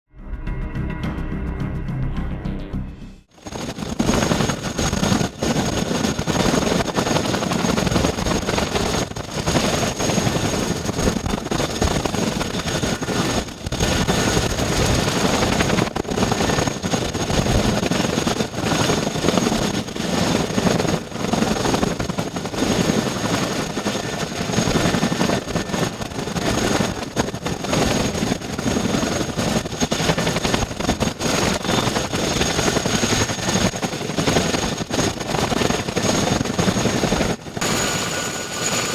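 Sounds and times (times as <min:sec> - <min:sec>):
helicopter rotors and engines: 0:00.3 - 0:38.9
high turbine whine: 0:28.0 - 0:38.9.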